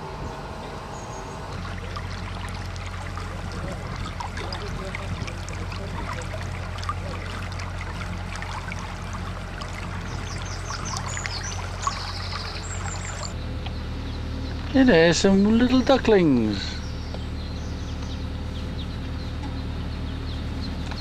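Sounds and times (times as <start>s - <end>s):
water splashing along hull: 0.0s - 13.4s
boat engine humming: 0.0s - 21.0s.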